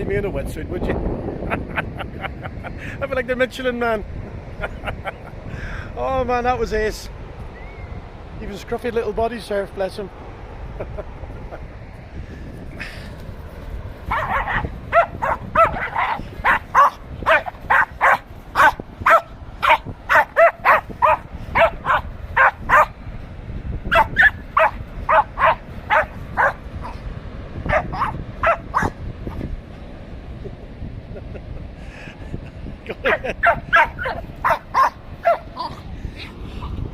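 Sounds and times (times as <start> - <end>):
dog barking: 14.1 - 22.9, 23.9 - 27.0, 27.7 - 29.0, 33.1 - 35.8.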